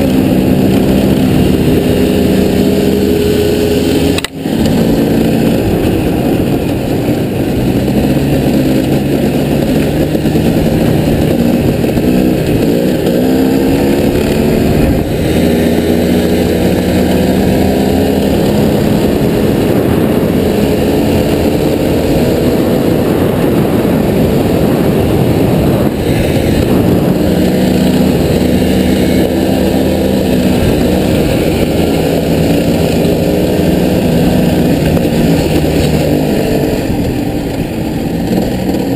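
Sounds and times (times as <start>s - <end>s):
off-road vehicle engine: 0.0s - 38.9s.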